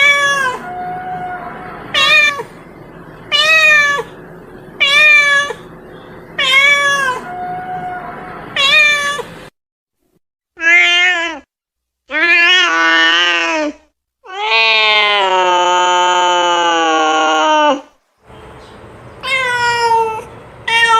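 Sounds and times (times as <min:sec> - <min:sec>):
cats meowing: 0:00.0 - 0:02.6, 0:03.3 - 0:04.2, 0:04.8 - 0:05.7, 0:06.4 - 0:09.4, 0:12.1 - 0:17.9, 0:19.2 - 0:20.9.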